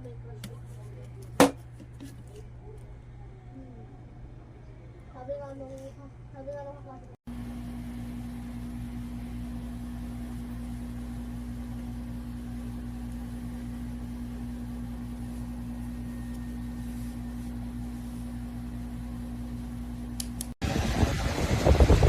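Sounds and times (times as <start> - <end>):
neck fan motor hum: 0.0 - 22.0
rush of air: 20.6 - 22.0.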